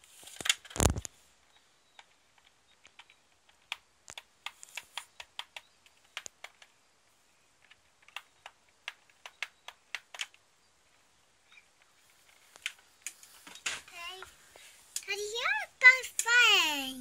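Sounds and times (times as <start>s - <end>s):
faint hiss of rain: 10.1s - 17.0s.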